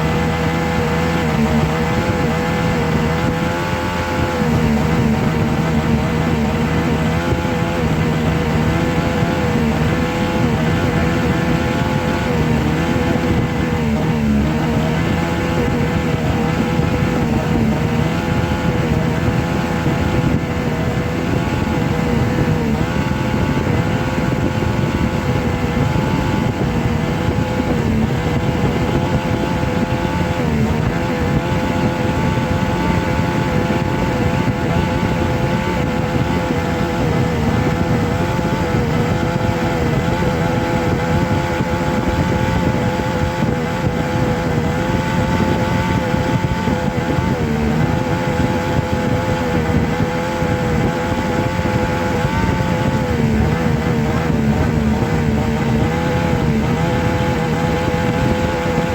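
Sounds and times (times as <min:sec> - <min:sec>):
motor running: 0:00.0 - 0:58.9.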